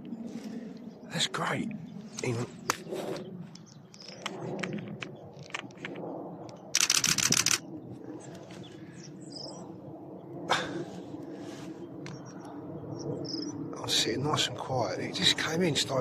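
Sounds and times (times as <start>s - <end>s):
camera shutter burst: 6.8s - 7.6s.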